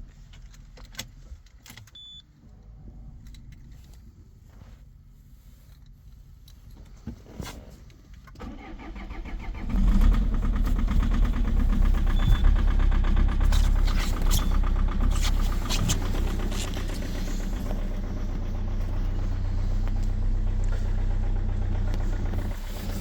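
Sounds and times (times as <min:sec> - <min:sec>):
diesel engine cranking: 0:08.4 - 0:23.0
diesel engine idling with knocking: 0:08.6 - 0:23.0.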